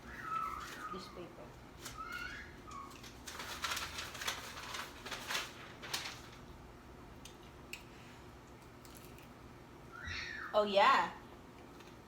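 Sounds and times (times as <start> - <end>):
paper rustling and crinkling: 0.1 - 6.5.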